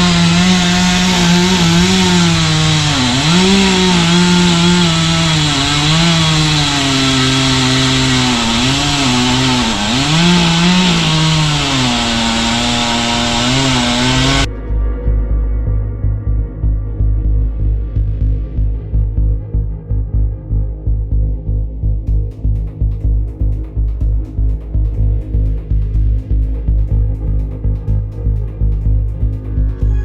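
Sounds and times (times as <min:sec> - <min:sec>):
chainsaw cutting wood: 0:00.0 - 0:14.5.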